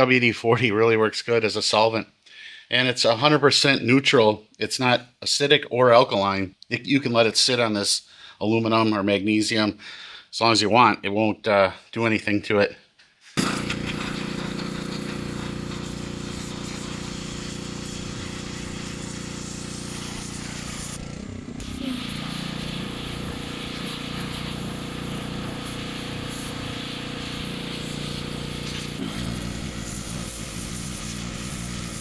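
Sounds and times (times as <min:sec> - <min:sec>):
pressure washer motor hum: 0:13.4 - 0:32.0
water jet hissing: 0:13.4 - 0:32.0.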